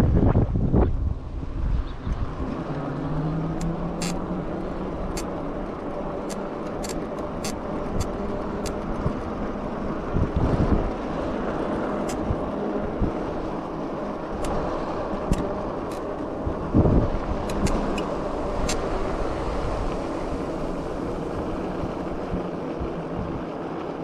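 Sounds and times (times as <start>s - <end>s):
sharp clicks: 3.6s - 4.2s
wind rushing: 12.2s - 23.4s.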